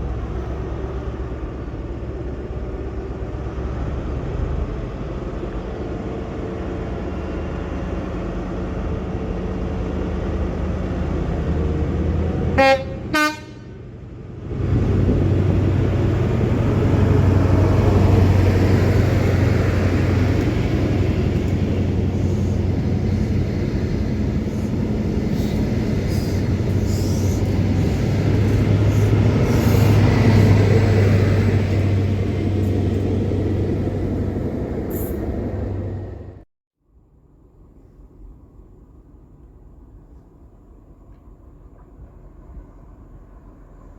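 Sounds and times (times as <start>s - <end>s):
train rumbling past: 0.0s - 36.5s, 37.9s - 43.9s
train horn blasts: 12.5s - 13.8s.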